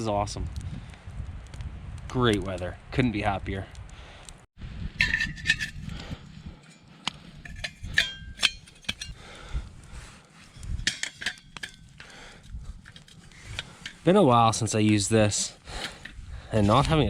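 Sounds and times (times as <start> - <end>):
wind rumble on microphone: 0.0 - 6.6, 7.2 - 17.0
metal cooking gear clinking: 7.4 - 9.2, 10.7 - 12.0.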